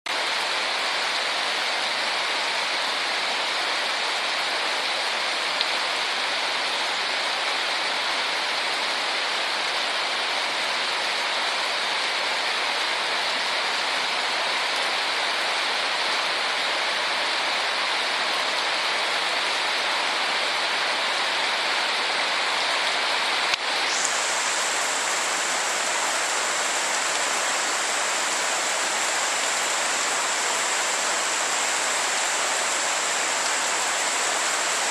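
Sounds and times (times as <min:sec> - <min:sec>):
light rain falling: 0:00.1 - 0:34.9.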